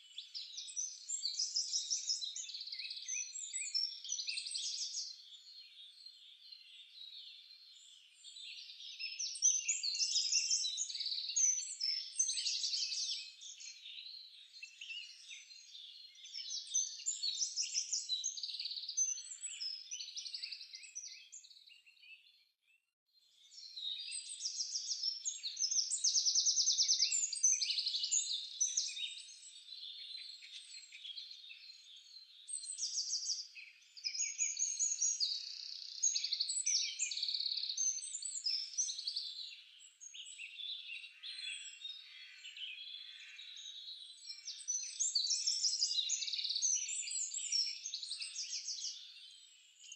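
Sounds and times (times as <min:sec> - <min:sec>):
birds chirping and trilling: 0:00.1 - 0:22.5, 0:23.3 - 0:49.9.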